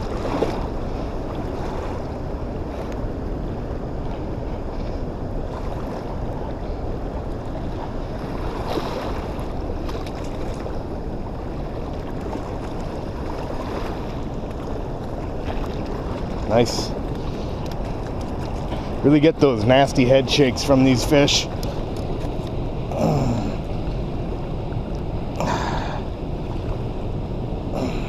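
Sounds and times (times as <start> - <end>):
rushing water: 0.0 - 28.0
wind buffeting microphone: 0.0 - 28.0.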